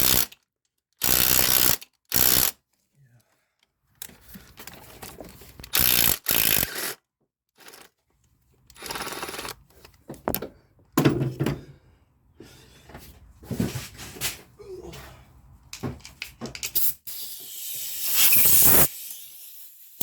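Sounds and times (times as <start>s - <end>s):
impact wrench bursts: 0.0s - 0.4s, 1.0s - 2.5s, 5.7s - 7.0s, 8.8s - 9.6s, 16.7s - 20.0s.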